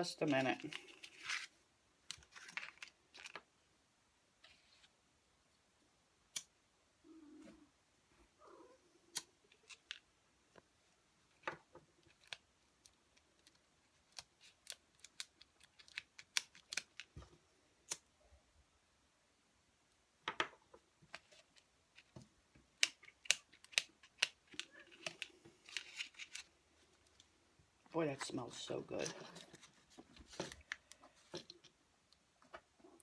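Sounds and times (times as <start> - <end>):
twigs clicking and snapping: 12.1 - 17.1, 22.8 - 26.5.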